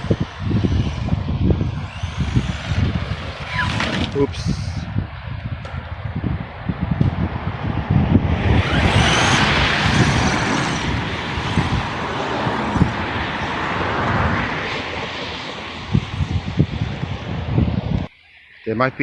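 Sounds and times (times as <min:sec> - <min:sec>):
electric motor whine: 0:00.0 - 0:05.0, 0:08.1 - 0:18.1.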